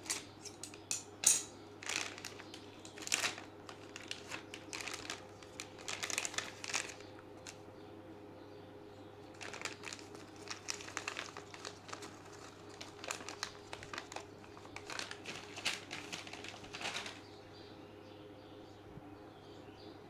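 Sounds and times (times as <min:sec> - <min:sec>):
crinkling and crackling: 0:00.0 - 0:07.6, 0:09.2 - 0:17.6.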